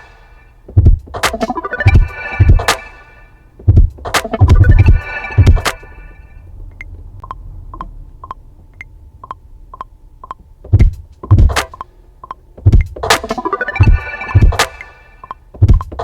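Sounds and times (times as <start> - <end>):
heavy kick drums: 0.6 - 2.8, 3.6 - 5.6, 10.7 - 11.7, 12.6 - 14.6, 15.6 - 16.0
low rumble: 3.7 - 11.5
sharp ticks: 6.7 - 13.3.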